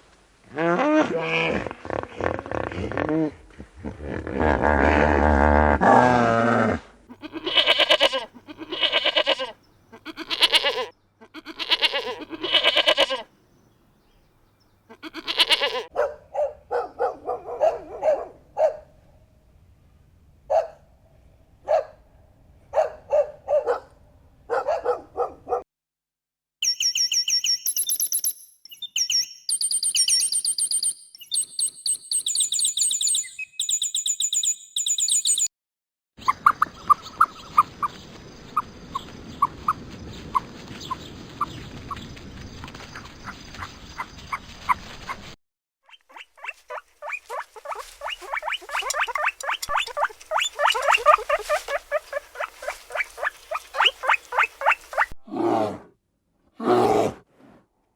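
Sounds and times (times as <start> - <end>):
dog barking: 15.9 - 19.0, 20.5 - 20.9, 21.6 - 22.0, 22.7 - 25.7
high chirping calls: 26.6 - 35.5, 45.9 - 55.1
rapid short animal calls: 45.9 - 55.1.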